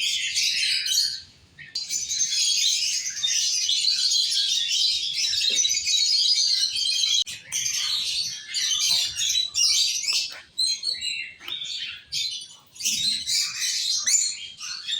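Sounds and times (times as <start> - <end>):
lovebirds chirping and squawking: 0.0 - 14.9.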